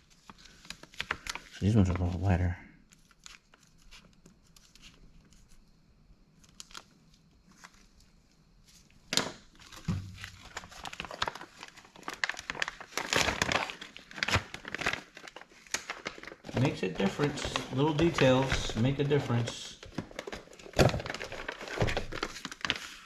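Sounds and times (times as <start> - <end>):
crinkling rustling handling noise: 0.0 - 5.6, 6.4 - 23.0.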